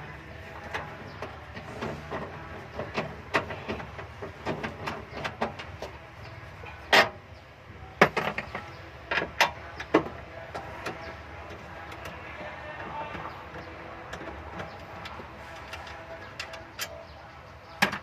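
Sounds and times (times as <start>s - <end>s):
tools clicking and knocking: 0.6s - 6.0s, 8.0s - 17.0s.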